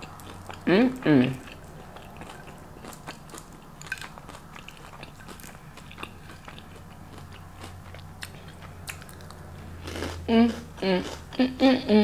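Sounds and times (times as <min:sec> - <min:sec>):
crunchy chewing: 0:00.0 - 0:11.4
low steady hum: 0:00.0 - 0:12.0.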